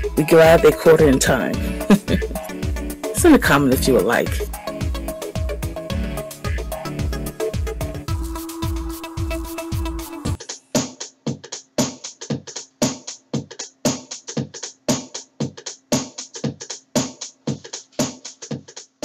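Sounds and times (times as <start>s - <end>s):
electronic music: 0.0s - 11.1s
drum machine beat: 0.0s - 19.0s.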